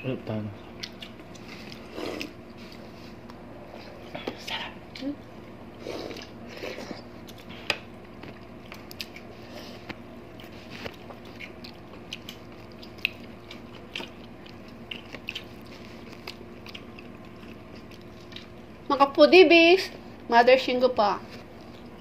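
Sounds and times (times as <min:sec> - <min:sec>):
chewing and wet mouth clicks: 0:00.8 - 0:02.4, 0:08.2 - 0:09.3, 0:10.3 - 0:18.6.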